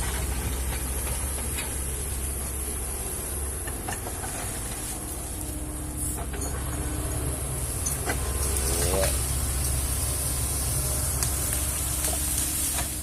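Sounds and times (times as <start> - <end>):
excavator diesel engine rumble: 0.0 - 13.0
high hiss: 7.5 - 13.0.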